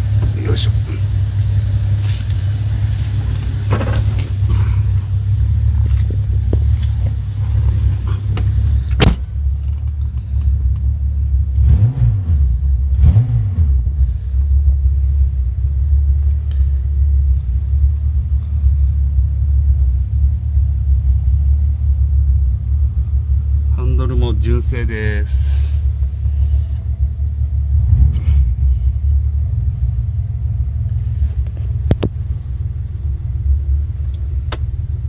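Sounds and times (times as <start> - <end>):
car engine idling: 0.0 - 35.0
engine throttle blips: 0.0 - 35.0.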